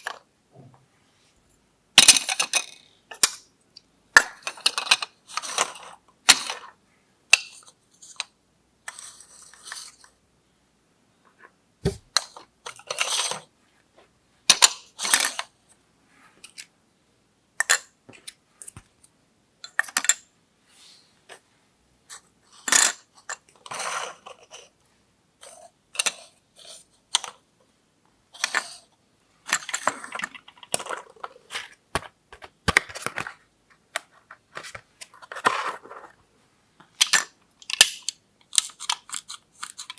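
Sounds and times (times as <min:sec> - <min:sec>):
plastic toy pieces clicking: 0:37.0 - 0:39.9.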